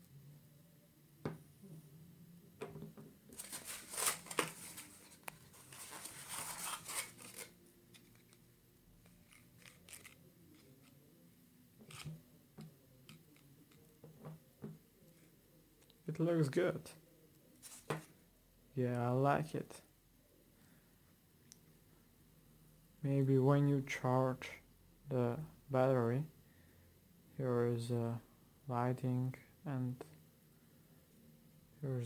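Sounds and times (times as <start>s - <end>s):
packaging rustling: 3.3s - 8.4s, 9.1s - 10.9s.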